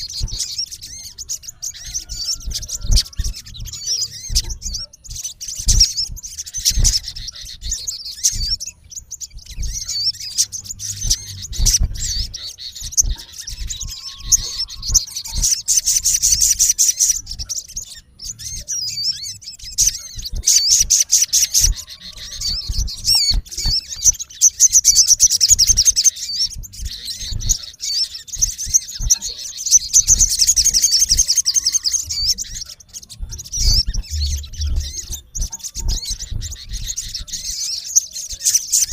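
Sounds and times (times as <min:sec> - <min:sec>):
bird chirping and trilling: 0:00.0 - 0:38.9
low thuds: 0:32.0 - 0:37.4.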